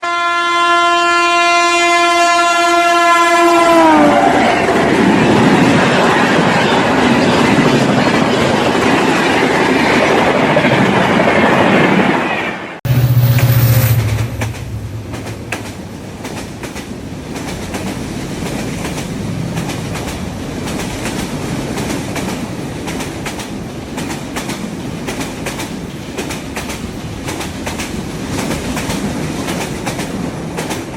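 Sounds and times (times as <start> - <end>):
train rumbling: 3.8 - 30.9
low droning tone: 12.9 - 15.7.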